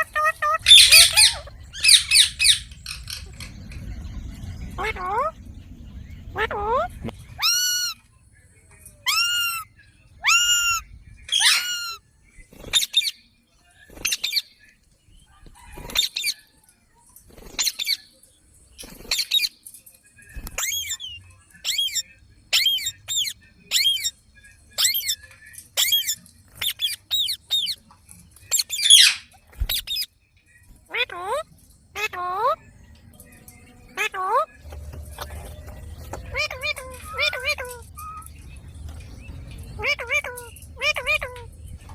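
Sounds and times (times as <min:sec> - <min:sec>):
parrot squawking: 0:00.0 - 0:03.5, 0:04.8 - 0:05.4, 0:06.3 - 0:08.0, 0:09.0 - 0:12.0, 0:20.6 - 0:24.1, 0:24.8 - 0:25.2, 0:25.8 - 0:27.8, 0:28.5 - 0:30.1, 0:30.9 - 0:31.4, 0:32.0 - 0:32.6, 0:33.9 - 0:38.3, 0:39.6 - 0:41.5.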